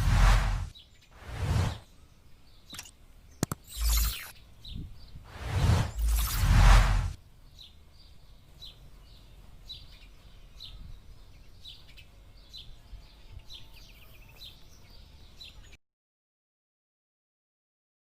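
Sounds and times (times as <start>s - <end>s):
loud rush of noise: 0.0s - 1.8s, 5.3s - 7.2s
bird chirping: 0.3s - 15.8s.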